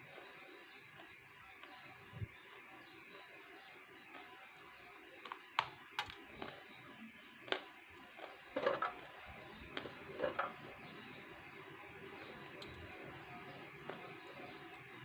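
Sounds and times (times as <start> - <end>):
sharp clicks: 5.3 - 6.6
biting and chewing clay: 7.4 - 11.0.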